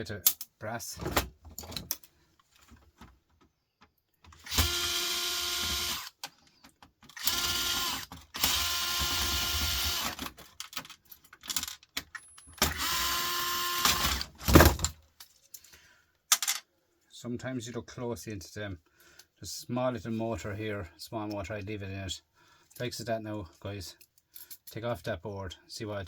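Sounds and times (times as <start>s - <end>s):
electric screwdriver motor spinning: 4.4s - 6.2s, 7.2s - 10.2s, 12.7s - 14.2s
small clicks of parts: 10.0s - 12.8s, 15.2s - 16.6s.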